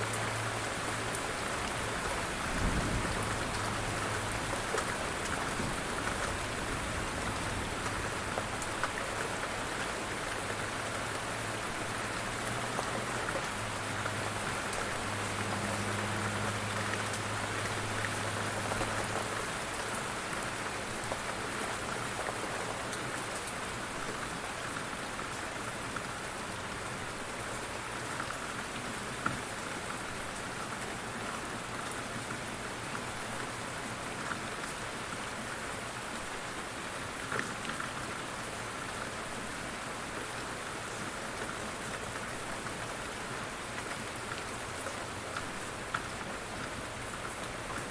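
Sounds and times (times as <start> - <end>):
steady rain falling: 0.0 - 47.9
raindrop ticks: 43.7 - 47.9.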